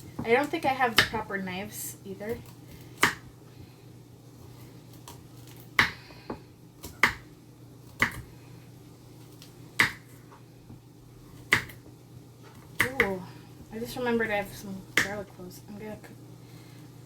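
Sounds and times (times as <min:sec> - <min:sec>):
knife chopping on cutting board: 0:03.0 - 0:03.3, 0:05.8 - 0:06.0, 0:06.8 - 0:07.3, 0:07.9 - 0:08.3, 0:09.8 - 0:10.2, 0:11.4 - 0:11.8.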